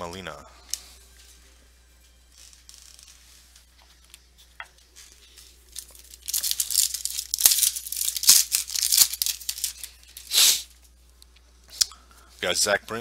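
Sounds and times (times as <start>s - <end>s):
foil wrapper tearing: 2.3s - 3.4s, 5.2s - 10.8s
foil wrapper handling: 2.3s - 4.2s, 5.0s - 10.7s.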